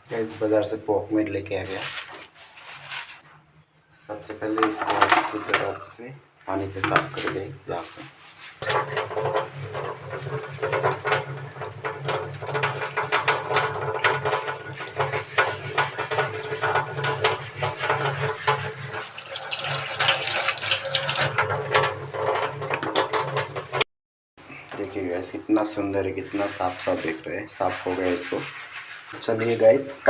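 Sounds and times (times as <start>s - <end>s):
running water splashing: 8.5s - 23.8s.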